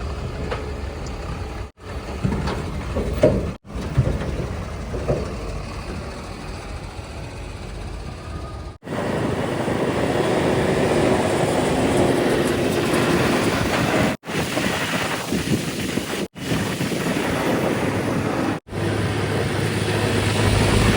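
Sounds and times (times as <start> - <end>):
diesel engine drone: 0.0 - 14.1, 18.6 - 20.9.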